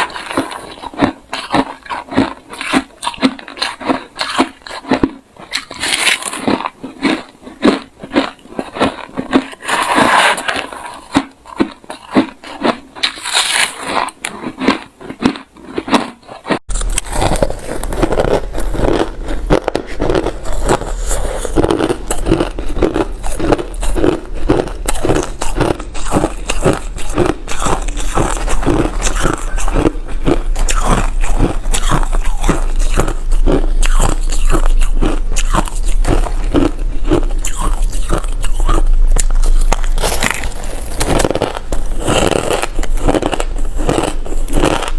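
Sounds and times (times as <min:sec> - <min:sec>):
ice crunching being chewed: 0:00.0 - 0:44.9
low hum: 0:16.7 - 0:44.9.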